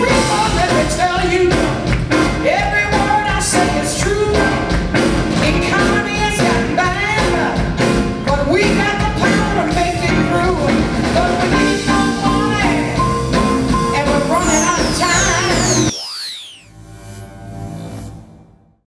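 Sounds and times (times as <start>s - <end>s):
blues-rock band playing: 0.0s - 15.9s
person singing: 13.9s - 15.9s
high falling sweeps: 14.3s - 16.7s.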